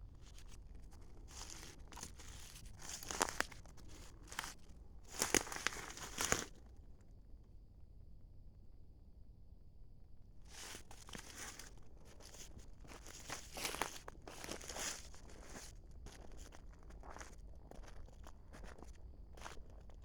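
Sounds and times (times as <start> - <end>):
rustling and crunching in undergrowth: 0.0 - 6.7, 10.5 - 20.0
twigs snapping: 0.2 - 6.6, 10.5 - 17.2.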